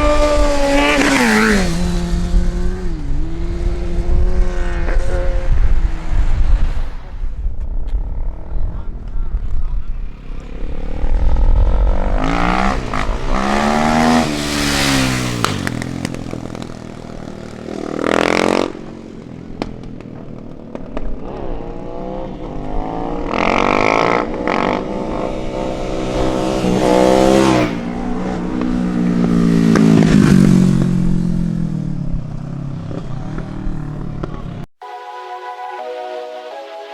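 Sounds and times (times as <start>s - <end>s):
cars and motorcycles revving past: 0.0s - 8.9s, 9.9s - 34.7s
music: 34.8s - 36.9s.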